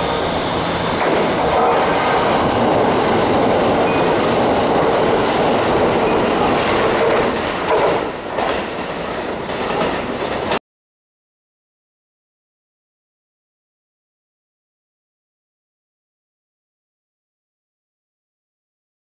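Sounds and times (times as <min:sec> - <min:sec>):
train passing at speed: 0:00.0 - 0:10.6
wheels clacking over rail joints: 0:01.0 - 0:10.6.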